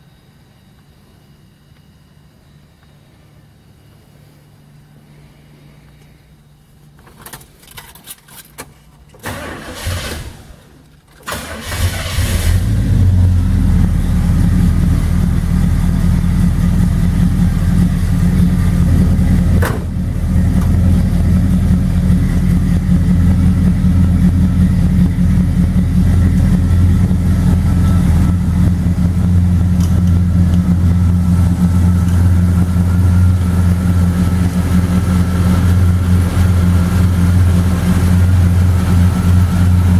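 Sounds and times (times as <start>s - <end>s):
car engine cranking: 7.0s - 39.9s
car engine idling: 9.2s - 39.9s.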